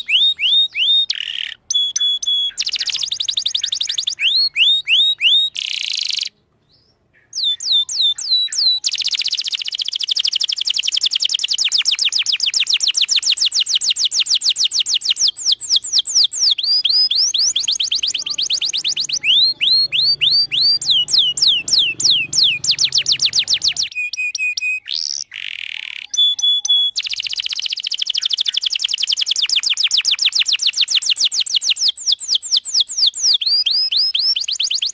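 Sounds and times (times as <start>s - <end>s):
canary singing trills: 0.0s - 34.9s.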